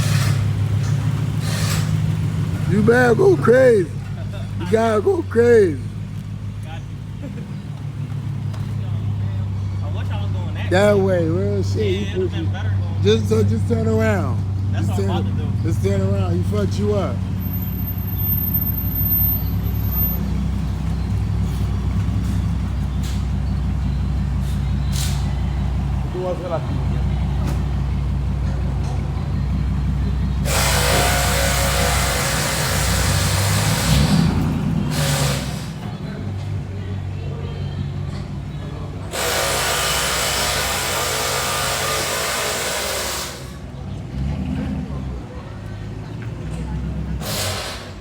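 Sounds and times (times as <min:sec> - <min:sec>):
car engine and road hum: 0:00.0 - 0:48.0
power tool whining: 0:30.4 - 0:34.2, 0:39.1 - 0:43.6.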